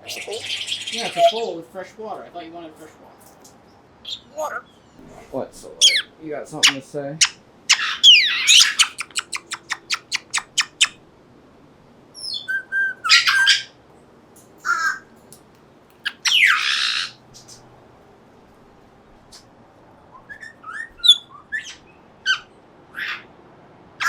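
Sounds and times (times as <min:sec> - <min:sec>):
parrot harsh squawks: 0:00.0 - 0:01.5, 0:05.8 - 0:11.0, 0:12.2 - 0:13.7, 0:14.6 - 0:15.1, 0:16.0 - 0:17.2, 0:20.4 - 0:23.3
parrot clicking: 0:05.8 - 0:10.9
parrot whistling: 0:05.8 - 0:11.0, 0:12.2 - 0:13.7, 0:16.0 - 0:17.2, 0:20.2 - 0:23.2.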